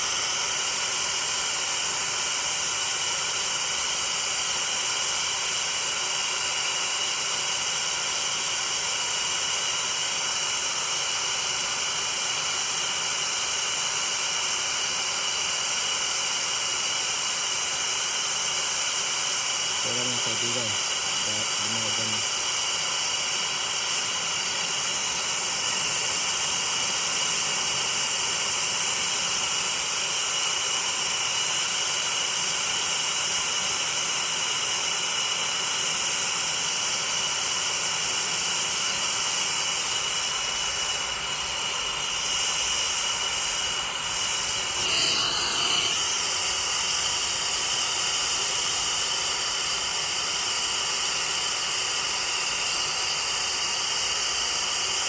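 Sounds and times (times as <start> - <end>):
torch flame hissing: 19.7 - 26.5, 39.4 - 47.2.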